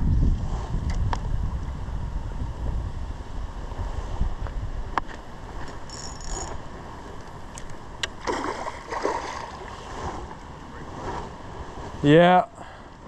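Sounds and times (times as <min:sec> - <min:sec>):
stream running: 0:05.3 - 0:12.8
water sloshing: 0:05.6 - 0:11.1.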